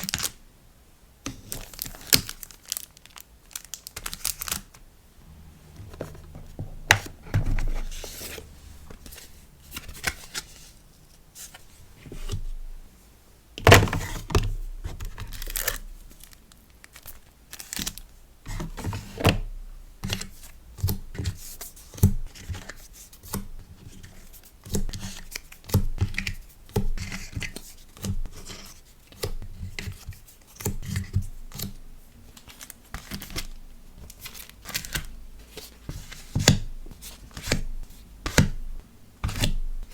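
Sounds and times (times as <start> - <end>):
paper and plastic crinkling: 0.0 - 0.4, 1.3 - 4.8, 13.7 - 19.3, 29.8 - 38.6.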